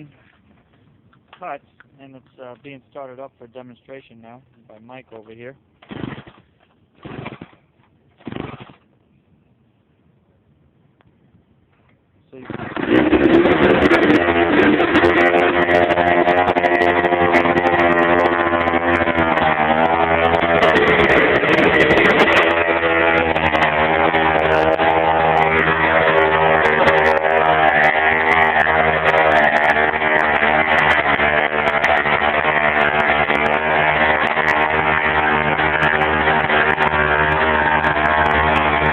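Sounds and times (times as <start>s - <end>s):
saw engine running loudly: 12.4s - 38.9s.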